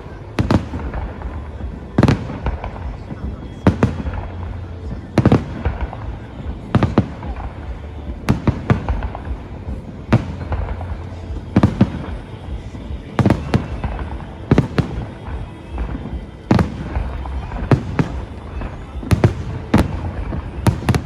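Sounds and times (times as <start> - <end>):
fireworks bursting in sharp bangs: 0.0 - 21.0.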